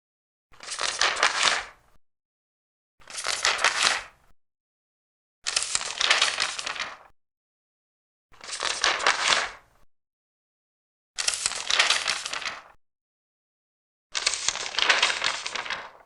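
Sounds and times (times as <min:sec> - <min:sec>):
paper pages turning: 0:00.6 - 0:01.8, 0:03.0 - 0:04.1, 0:05.5 - 0:07.1, 0:08.4 - 0:09.6, 0:11.2 - 0:12.8, 0:14.2 - 0:16.0.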